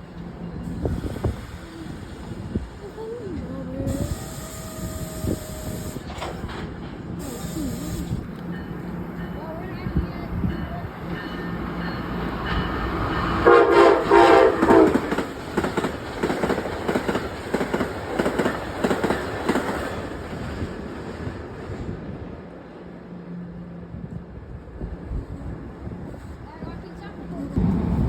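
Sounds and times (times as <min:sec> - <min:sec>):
train wheels clattering over rails: 0:03.9 - 0:21.8
train horn: 0:13.4 - 0:15.3.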